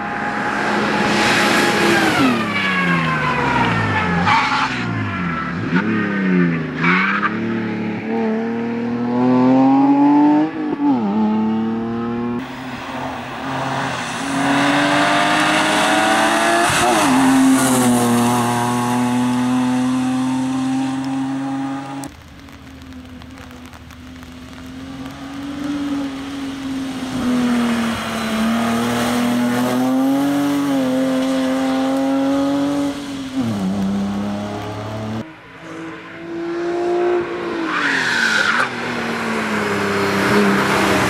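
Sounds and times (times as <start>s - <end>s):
rally car engine revving: 13.3s - 23.3s, 24.5s - 41.0s.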